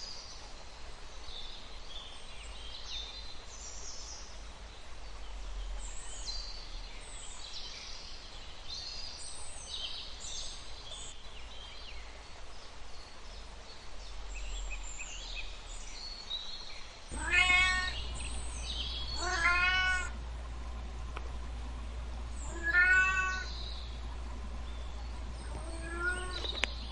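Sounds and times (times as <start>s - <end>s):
small birds chirping: 0.0s - 26.9s
cat meowing loudly: 17.1s - 18.0s, 19.2s - 20.2s, 22.5s - 23.5s, 25.5s - 26.6s.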